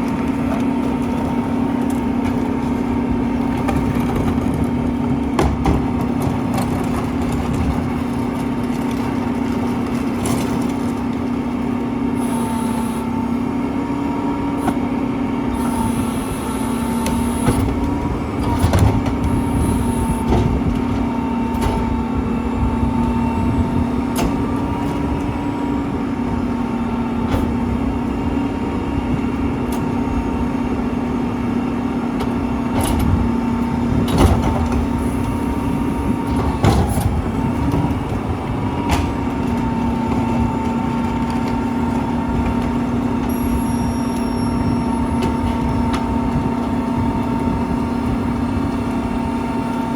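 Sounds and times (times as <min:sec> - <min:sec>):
garbage truck running with whine: 0:00.0 - 0:49.9
air hisses: 0:15.6 - 0:17.6, 0:19.4 - 0:20.3.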